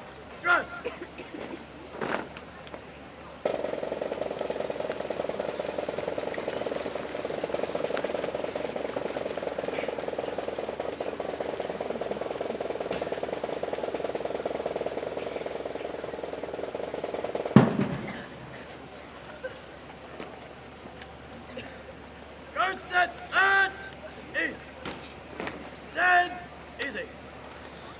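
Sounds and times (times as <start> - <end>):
faint pulsing insect chirp: 0.0 - 27.9
drum roll: 3.5 - 18.7.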